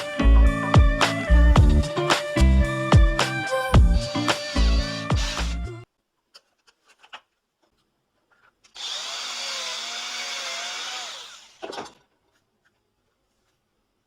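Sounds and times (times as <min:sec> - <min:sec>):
small electric motor tool whining: 0:08.7 - 0:12.0.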